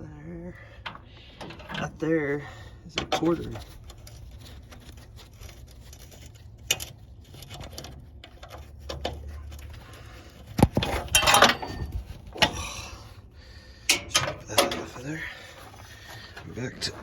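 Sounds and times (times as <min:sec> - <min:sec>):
metal scraping and rattling: 0:00.8 - 0:17.0
light clicks of hand tools: 0:13.9 - 0:14.9.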